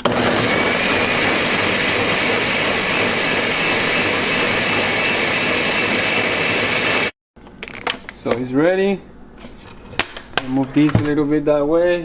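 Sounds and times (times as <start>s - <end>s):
blender running: 0.0s - 7.2s.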